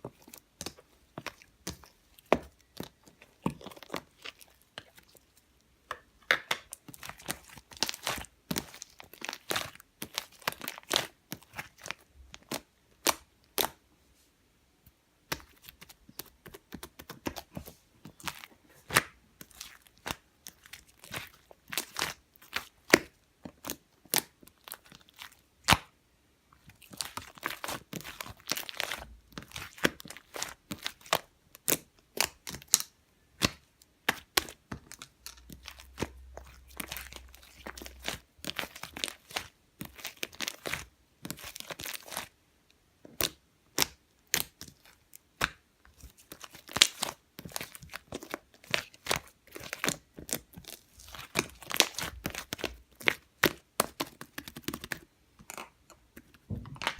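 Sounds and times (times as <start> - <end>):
crinkling and tearing: 45.9 - 55.8.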